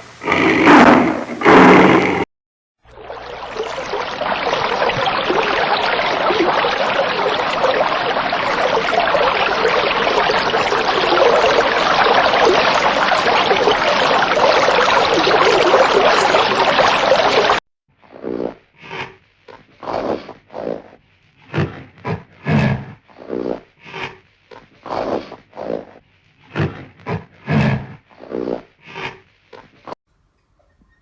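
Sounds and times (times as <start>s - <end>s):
stream water flowing: 2.9s - 17.6s.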